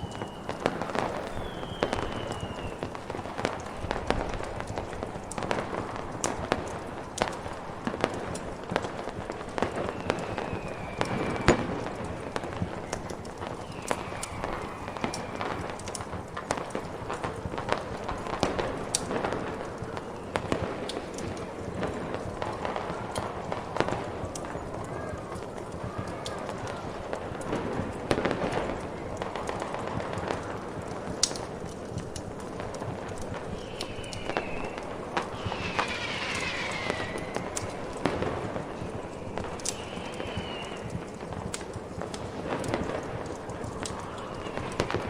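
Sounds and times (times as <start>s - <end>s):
downward sliding whistling tones: 0.0s - 4.1s, 9.7s - 16.0s, 33.5s - 38.2s, 38.8s - 40.9s
snowstorm wind hissing: 0.0s - 9.5s, 11.6s - 19.8s, 32.6s - 45.0s
fireworks popping and crackling: 0.0s - 45.0s.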